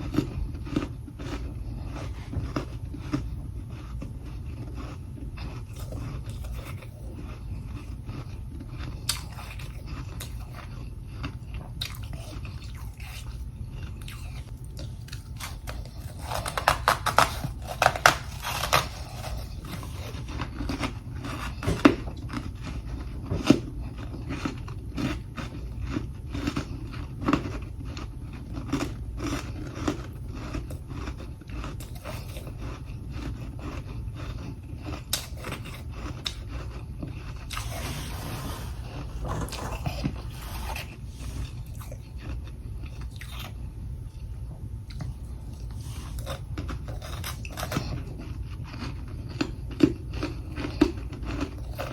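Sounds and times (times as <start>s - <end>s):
crunching frozen frost: 15.4s - 21.6s.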